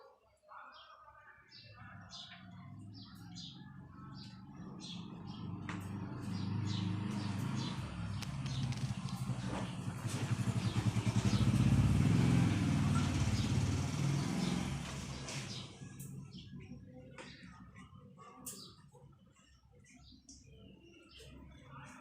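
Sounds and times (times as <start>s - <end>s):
vehicle engine passing by: 2.7s - 16.4s.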